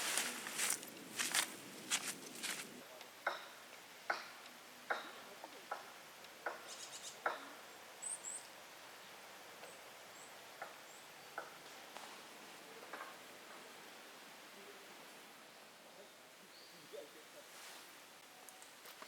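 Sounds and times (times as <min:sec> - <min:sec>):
footsteps walking: 0:00.0 - 0:02.8.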